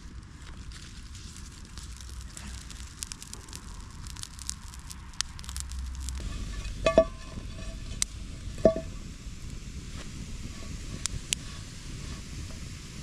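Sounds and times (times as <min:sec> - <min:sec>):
campfire crackling and popping: 0:00.0 - 0:13.0
sharp metallic clanks: 0:06.2 - 0:08.0.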